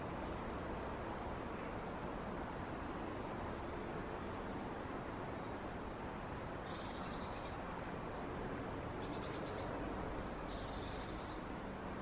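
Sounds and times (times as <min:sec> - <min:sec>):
birds chirping: 0:06.6 - 0:07.6, 0:09.0 - 0:09.8, 0:10.5 - 0:11.5.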